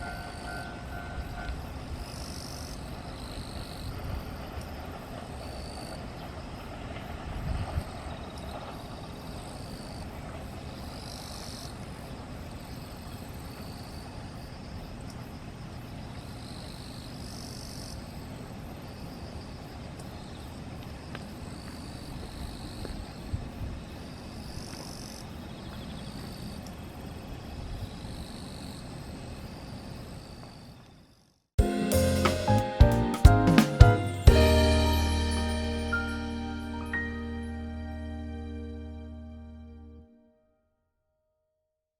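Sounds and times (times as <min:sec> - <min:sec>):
insects chirping: 0:00.0 - 0:32.6
electric train rumbling: 0:31.6 - 0:40.0.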